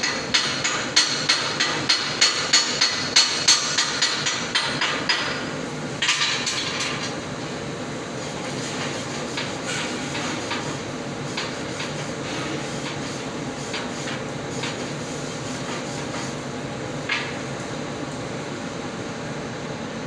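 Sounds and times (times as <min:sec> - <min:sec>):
welding arc crackling hiss: 0:07.8 - 0:18.5.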